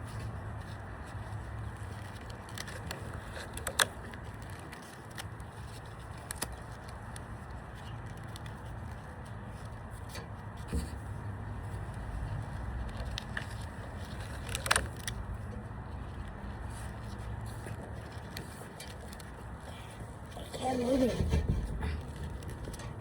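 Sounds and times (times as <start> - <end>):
outdoor background noise: 0.0 - 23.0.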